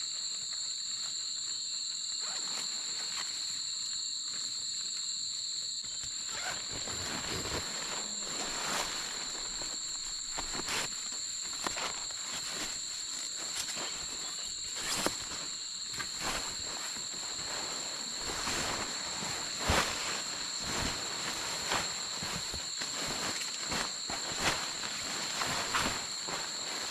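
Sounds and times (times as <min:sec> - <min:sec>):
insects chirring: 0:00.0 - 0:26.9
handling rustles and knocks: 0:06.1 - 0:26.9.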